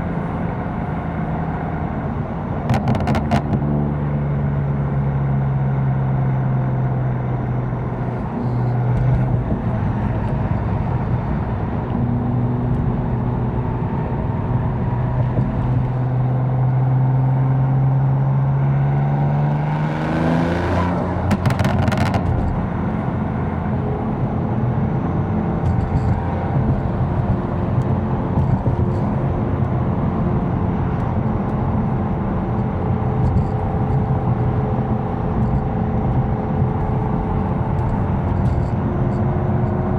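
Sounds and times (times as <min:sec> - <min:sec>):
car engine droning: 0:00.0 - 0:39.9
engine revving: 0:17.8 - 0:24.5.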